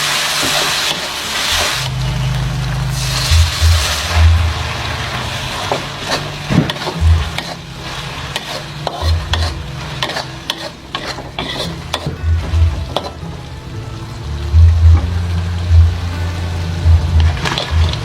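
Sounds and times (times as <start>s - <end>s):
food sizzling in a pan: 0.0s - 18.0s
utensil scraping a pan: 2.9s - 13.2s.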